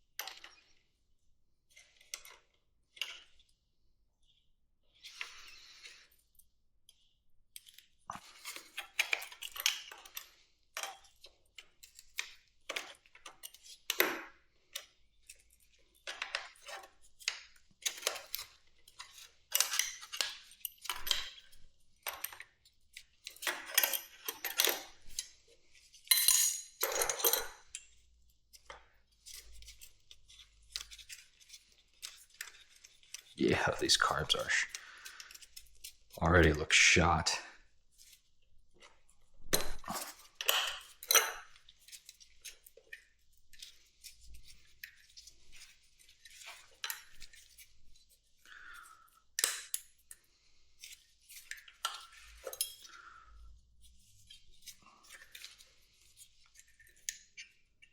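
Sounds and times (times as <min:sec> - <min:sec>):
hand tools and metal parts clinking: 0:23.2 - 0:25.3, 0:26.0 - 0:36.6, 0:39.6 - 0:43.0, 0:50.8 - 0:53.0.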